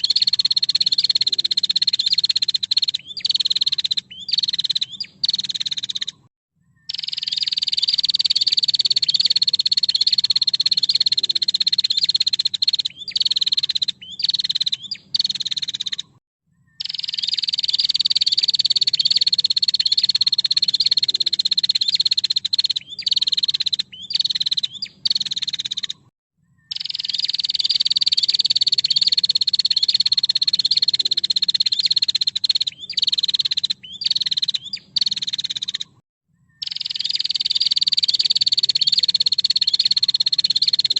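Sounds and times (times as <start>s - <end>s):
bird trilling and calling: 0.0s - 40.9s.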